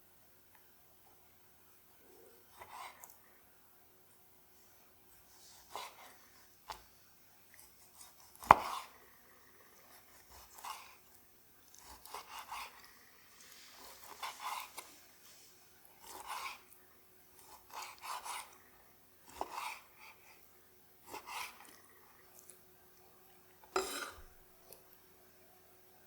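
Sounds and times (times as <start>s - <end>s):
knife slicing on cutting board: 7.9s - 9.0s, 11.7s - 12.8s, 13.4s - 14.9s, 17.4s - 18.5s, 19.3s - 19.9s, 23.8s - 24.3s.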